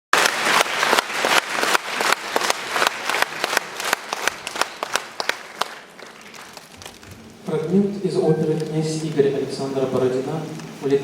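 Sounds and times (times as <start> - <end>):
audience applauding: 0.1 - 7.3.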